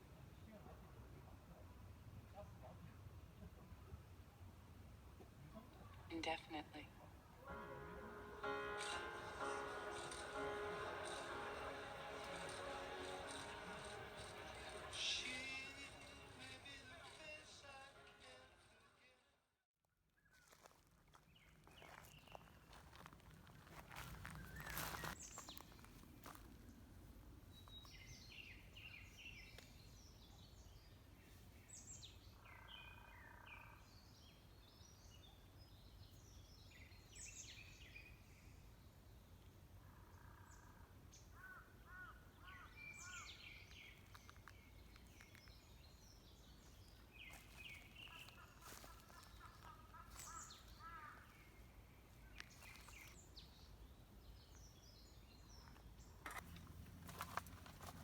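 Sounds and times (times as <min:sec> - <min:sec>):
birds chirping and trilling: 0:21.7 - 0:23.1, 0:23.7 - 0:26.4, 0:40.0 - 0:58.0.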